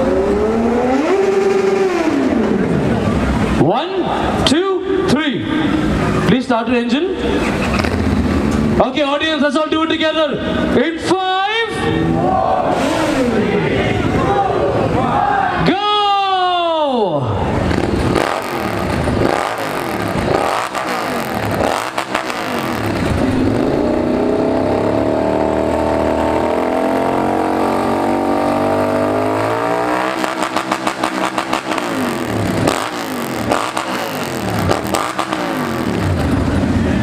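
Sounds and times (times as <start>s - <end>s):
motorcycle engine revving: 0.0s - 3.6s, 7.2s - 8.9s, 12.0s - 13.7s, 17.5s - 37.0s.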